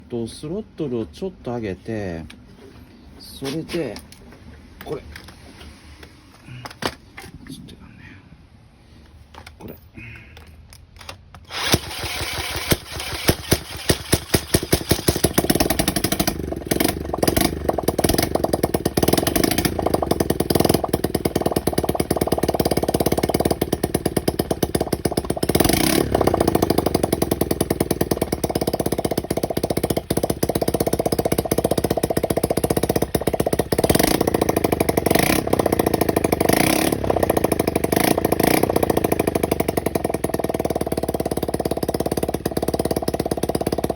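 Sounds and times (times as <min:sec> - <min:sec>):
motorcycle engine running: 0:11.6 - 0:43.9.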